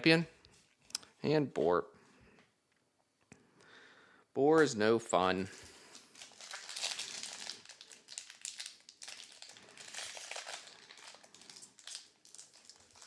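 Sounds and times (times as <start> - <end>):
foil wrapper crinkling: 5.9 - 13.0.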